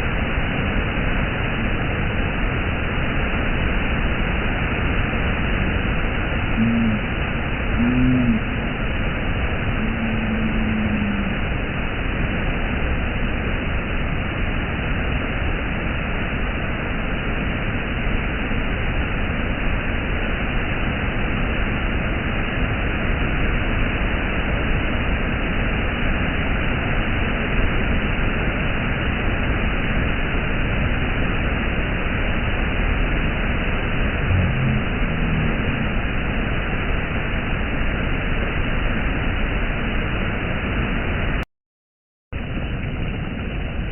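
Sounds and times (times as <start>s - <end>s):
low tone: 5.4s - 13.1s, 32.6s - 37.8s
waterfall rushing: 6.2s - 12.6s, 32.7s - 37.6s.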